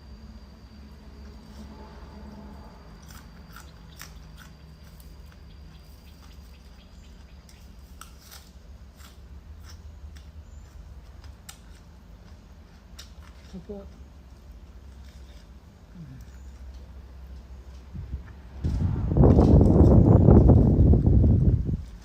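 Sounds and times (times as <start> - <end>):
low steady hum: 0.0 - 22.0
person chewing: 3.0 - 5.4.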